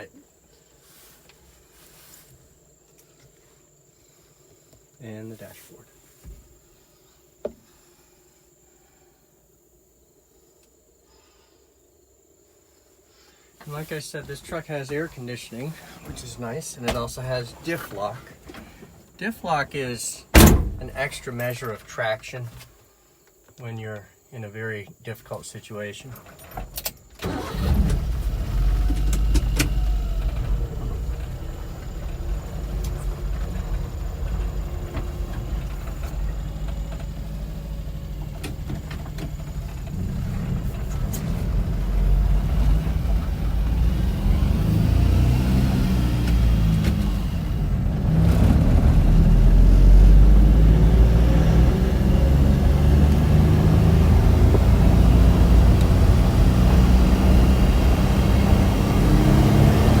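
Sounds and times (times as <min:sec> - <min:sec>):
small truck engine driving: 0:13.6 - 0:21.8, 0:26.2 - 1:00.0.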